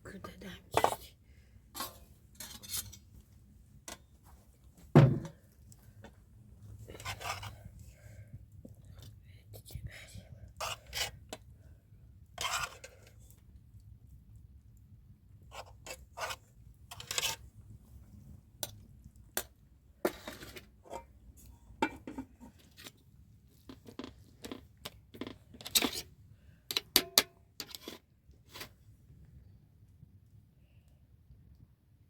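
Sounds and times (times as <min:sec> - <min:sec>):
objects clattering: 0:04.9 - 0:05.4.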